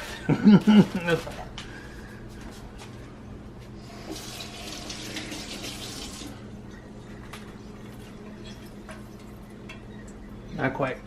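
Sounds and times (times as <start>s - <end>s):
water running from a tap: 4.0s - 6.4s.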